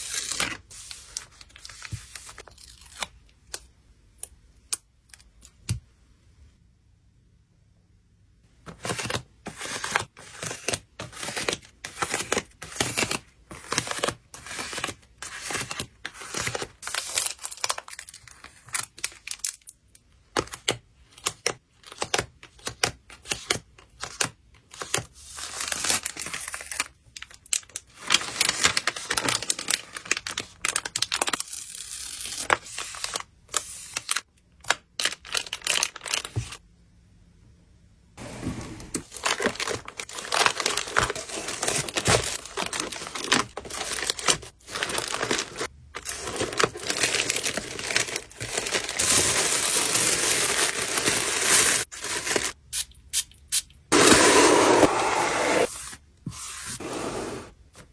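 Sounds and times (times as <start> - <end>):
packing materials crinkling: 24.0 - 36.6, 39.0 - 52.6.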